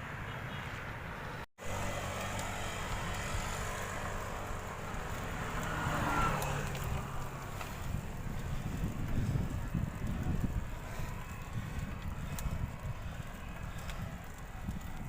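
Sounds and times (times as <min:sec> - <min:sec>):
motor engine running: 0:01.6 - 0:15.0.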